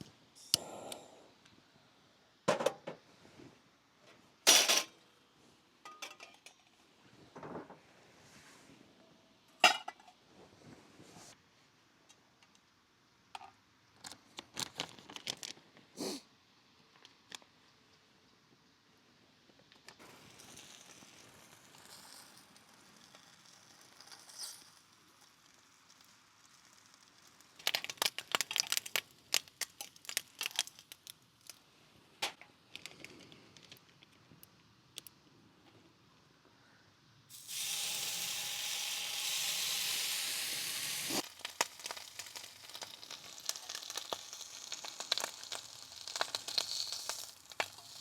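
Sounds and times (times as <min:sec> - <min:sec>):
faint crinkling: 0:32.4 - 0:36.8.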